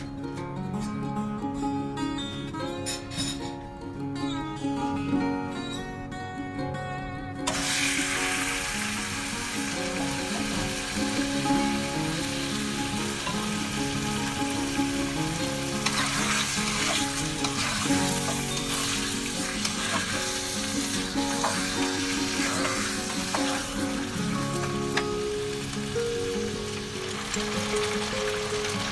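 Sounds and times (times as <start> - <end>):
soft background music: 0.0 - 28.9
food sizzling in a pan: 7.5 - 28.9
stirring in a pan: 7.5 - 28.9.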